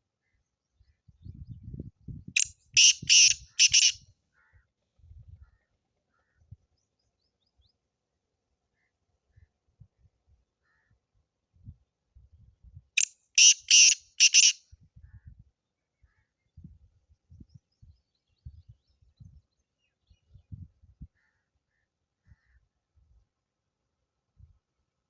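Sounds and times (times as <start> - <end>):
francolin harsh call: 2.8 - 4.0, 13.4 - 14.6.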